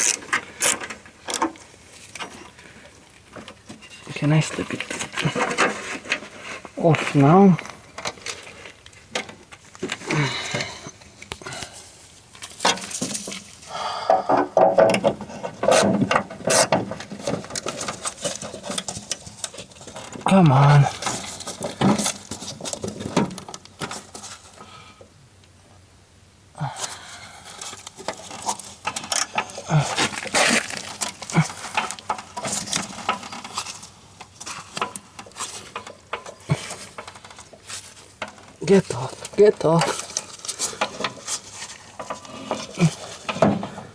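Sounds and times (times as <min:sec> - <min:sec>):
clicks and scrapes of hands working: 0:00.0 - 0:11.8, 0:12.4 - 0:24.6, 0:26.8 - 0:43.8
person grunting: 0:10.1 - 0:10.8, 0:29.6 - 0:30.1.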